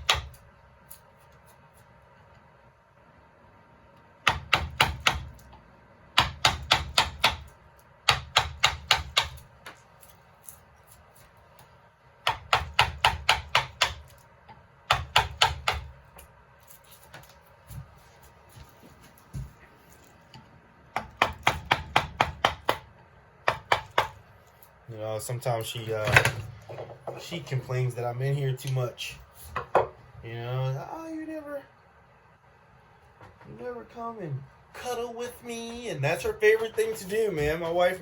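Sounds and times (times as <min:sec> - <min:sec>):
mallet tapping chisel into wood: 0:04.2 - 0:05.4, 0:06.2 - 0:09.4, 0:12.2 - 0:14.0, 0:14.9 - 0:15.9, 0:20.9 - 0:24.2.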